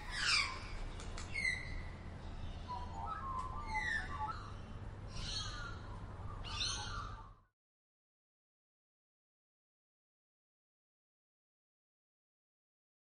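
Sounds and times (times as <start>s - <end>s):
birds whistling and warbling: 0.0s - 7.5s.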